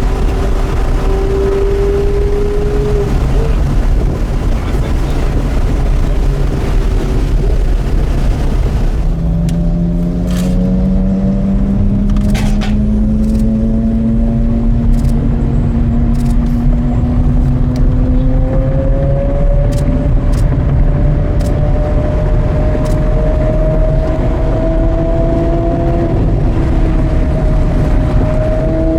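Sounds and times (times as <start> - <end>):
heavy low rumble: 0.0 - 28.9
sports car engine climbing: 0.0 - 28.9
short sharp clicks: 12.1 - 13.6, 14.9 - 15.2.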